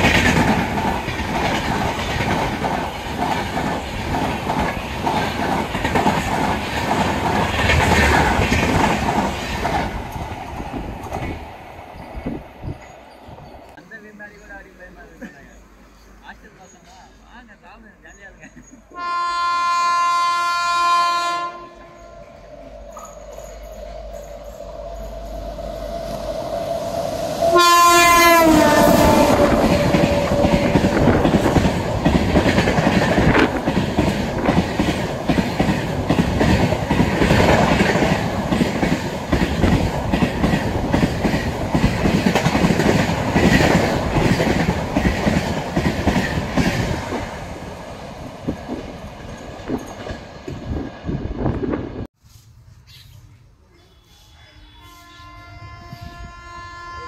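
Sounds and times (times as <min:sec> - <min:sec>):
train wheels clattering over rails: 0:00.0 - 0:13.8, 0:28.3 - 0:51.1
train horn: 0:19.0 - 0:23.1, 0:27.4 - 0:31.2, 0:53.8 - 0:57.0.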